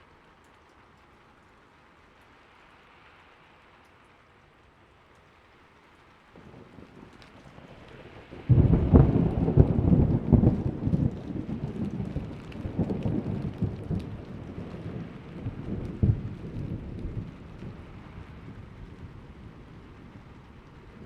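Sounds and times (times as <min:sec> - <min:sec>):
rain hiss: 0:00.0 - 0:21.0
thunder rolling: 0:07.8 - 0:21.0.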